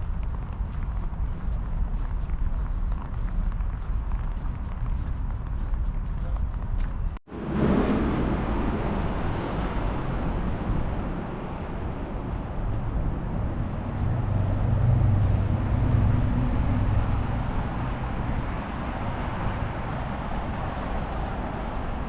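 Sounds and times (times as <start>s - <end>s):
road traffic rumble: 0.0s - 22.0s
passing vehicle engine hum: 7.0s - 22.0s.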